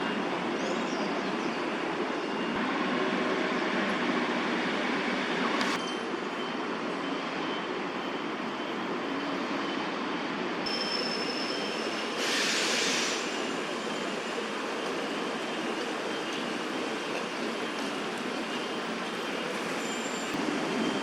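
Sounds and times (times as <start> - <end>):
distant traffic rumble: 0.0 - 5.8, 13.0 - 21.0
brief bright hiss: 12.2 - 13.4.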